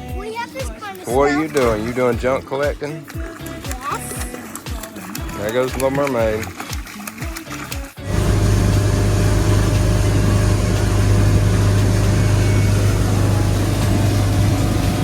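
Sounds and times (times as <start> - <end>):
engine humming: 8.0 - 15.0
loud rushing noise: 8.1 - 15.0.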